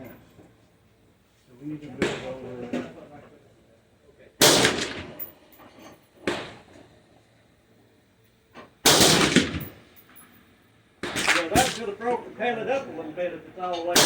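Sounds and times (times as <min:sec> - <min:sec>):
gunshots with rolling echo: 0:04.4 - 0:05.2, 0:11.1 - 0:12.0.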